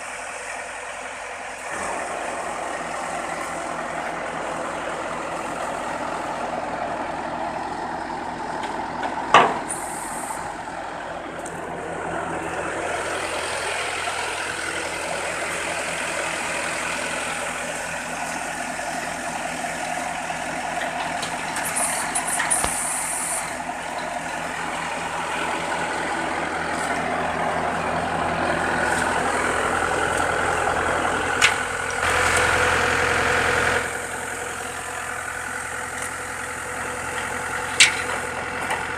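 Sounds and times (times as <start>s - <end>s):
diesel truck engine idling: 0.0s - 38.9s
short air hiss: 21.8s - 23.5s.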